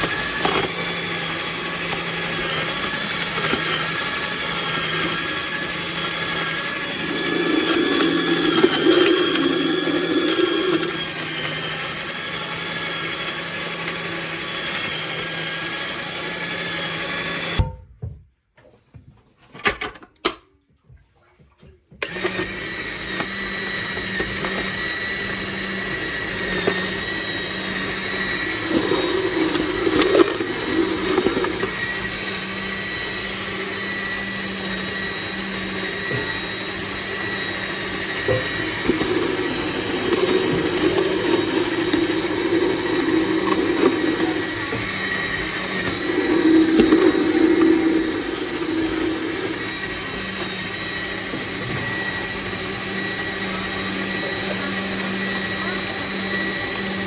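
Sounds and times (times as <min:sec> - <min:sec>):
rough grinding: 0:00.0 - 0:12.9, 0:22.6 - 0:52.2
juicer motor whining: 0:00.0 - 0:17.6, 0:22.0 - 0:57.0.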